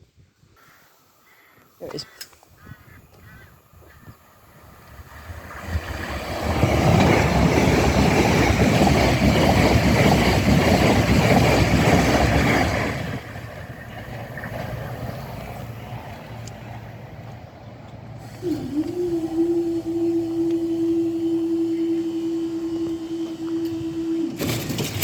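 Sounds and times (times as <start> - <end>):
train rumbling past: 3.3 - 25.0
wheels clattering on rails: 4.7 - 19.0, 20.4 - 25.0.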